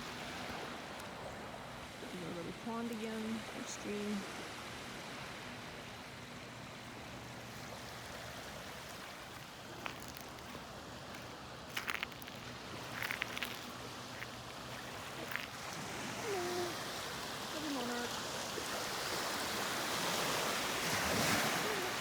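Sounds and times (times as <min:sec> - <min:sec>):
small stream trickling: 0:04.6 - 0:22.0.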